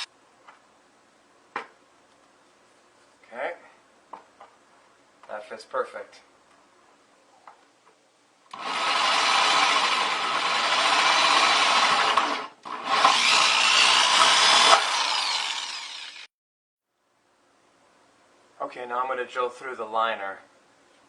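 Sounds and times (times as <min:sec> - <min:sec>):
power drill cutting plastic: 0:08.5 - 0:16.3.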